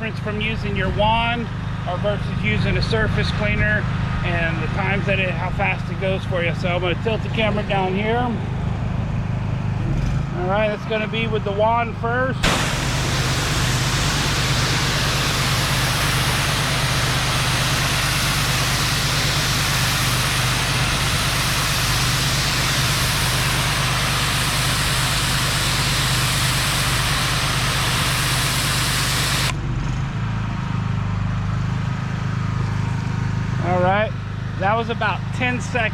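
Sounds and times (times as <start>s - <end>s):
pressure washer engine running: 0.0s - 35.9s
high-pressure spray hissing: 12.4s - 29.5s.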